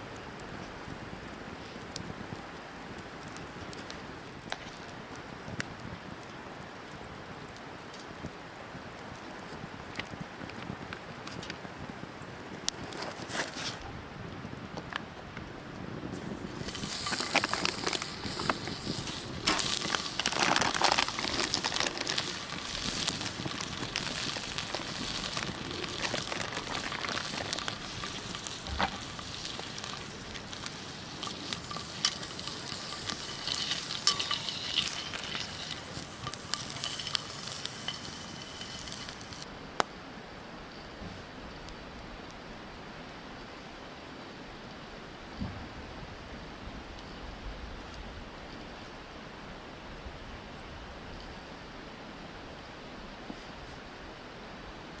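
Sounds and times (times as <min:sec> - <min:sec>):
wood fire crackling and popping: 0:00.0 - 0:39.9
food sizzling: 0:16.2 - 0:39.5.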